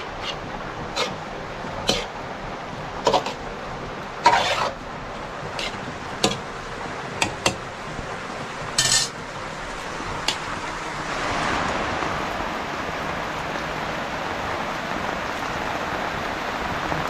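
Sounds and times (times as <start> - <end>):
scrape: 0.0 - 1.2, 1.9 - 2.1, 4.3 - 4.8, 5.6 - 5.8, 8.8 - 9.1.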